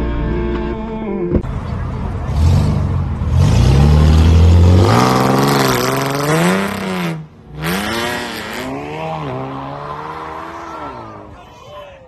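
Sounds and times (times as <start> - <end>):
car engine revving hard: 2.1 - 11.3.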